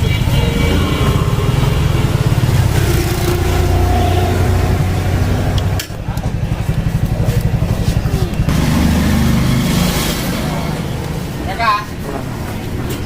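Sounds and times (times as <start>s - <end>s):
small motorcycle engine idling: 0.0s - 11.4s.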